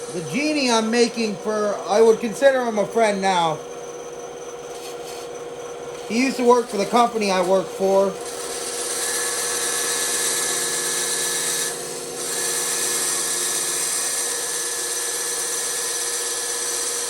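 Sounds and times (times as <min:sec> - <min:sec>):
bandsaw cutting wood: 0:04.7 - 0:17.0.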